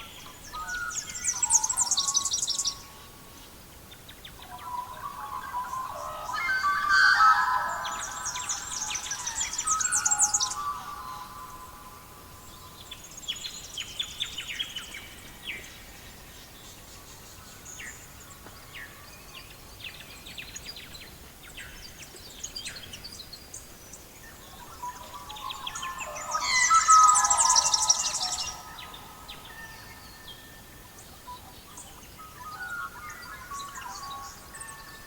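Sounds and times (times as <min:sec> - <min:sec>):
faint bird chirps: 0:24.3 - 0:35.0.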